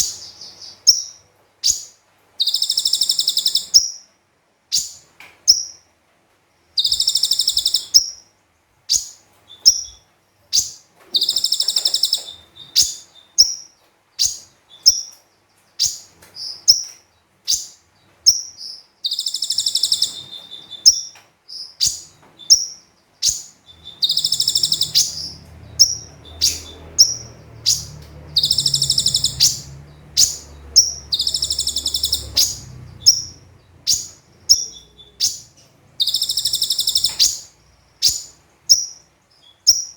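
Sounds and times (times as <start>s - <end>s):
bird chirping and trilling: 0.0s - 4.1s, 4.7s - 5.9s, 6.8s - 39.9s
faint low rumble: 23.7s - 38.0s.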